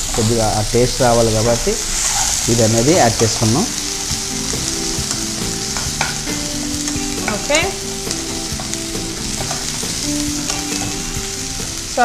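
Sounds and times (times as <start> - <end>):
masala sizzling in hot oil: 0.0 - 12.0
steel spoon stirring and scraping: 5.7 - 11.2.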